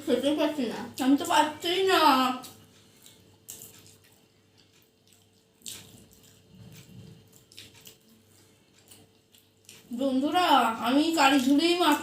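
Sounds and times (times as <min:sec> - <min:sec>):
wet chewing sounds: 0:02.3 - 0:10.3.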